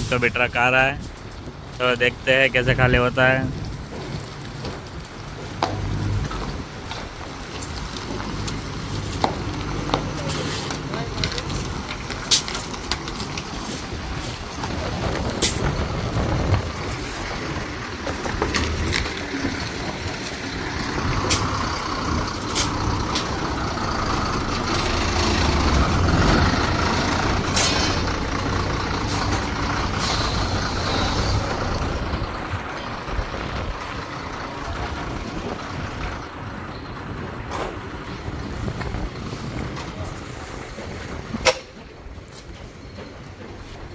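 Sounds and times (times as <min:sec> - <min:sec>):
diesel truck engine running: 0:00.0 - 0:43.9
air brake hisses: 0:30.0 - 0:31.4.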